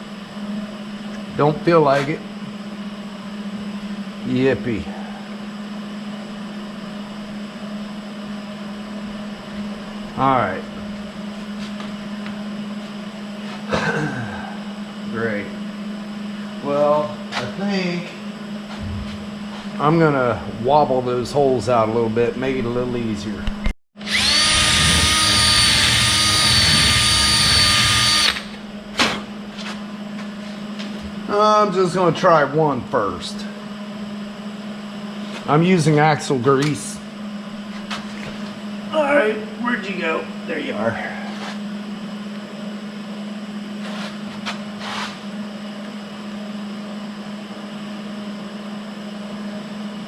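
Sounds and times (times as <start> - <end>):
machine hum: 0.0 - 50.0
power drill running: 24.0 - 28.6.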